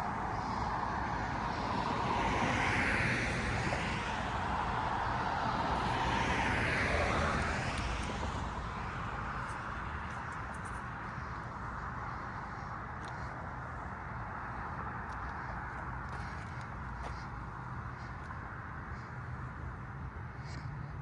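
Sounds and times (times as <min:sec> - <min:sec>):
passing traffic rushing: 0:00.0 - 0:21.0.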